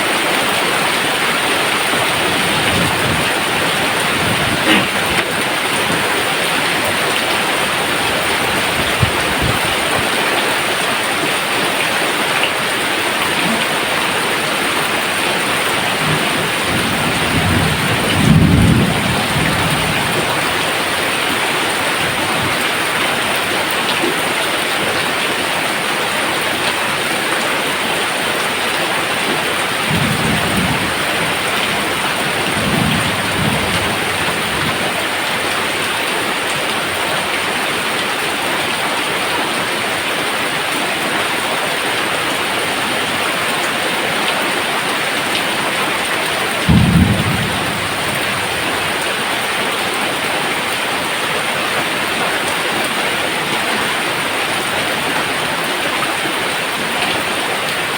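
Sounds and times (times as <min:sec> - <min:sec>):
heavy rain pouring: 0:00.0 - 0:57.9
thunder rumbling: 0:01.6 - 0:07.1, 0:08.0 - 0:10.2, 0:13.6 - 0:21.0, 0:29.7 - 0:35.2, 0:46.6 - 0:49.4.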